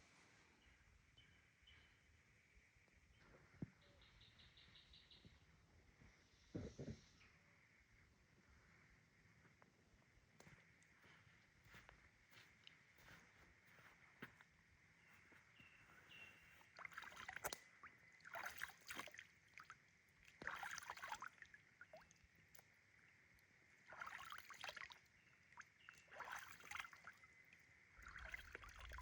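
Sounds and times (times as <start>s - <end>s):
water splashing and sloshing: 16.5s - 29.0s.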